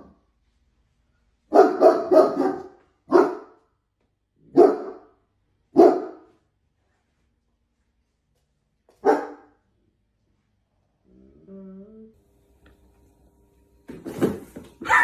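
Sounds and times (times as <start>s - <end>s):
dog barking: 1.5s - 3.6s, 4.4s - 6.3s, 9.0s - 9.6s.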